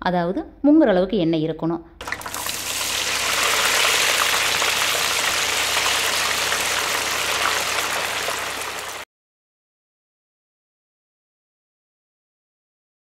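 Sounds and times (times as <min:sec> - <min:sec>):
plantain sizzling in hot oil: 0:02.0 - 0:09.0.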